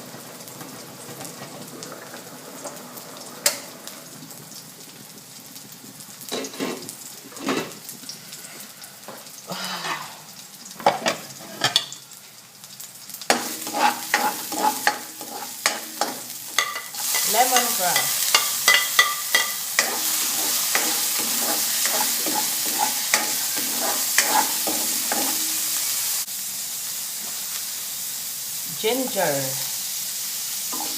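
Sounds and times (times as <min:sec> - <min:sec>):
garlic sizzling in oil: 0:00.0 - 0:30.9
spatula scraping a wok: 0:11.0 - 0:11.9, 0:13.3 - 0:26.2.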